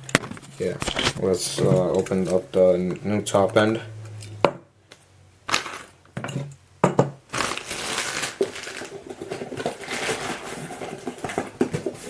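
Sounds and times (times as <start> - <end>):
wrapping crinkling: 7.3 - 12.0.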